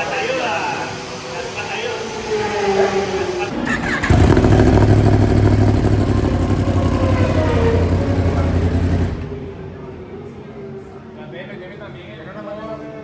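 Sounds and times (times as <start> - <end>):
motorcycle engine running: 3.5 - 9.6.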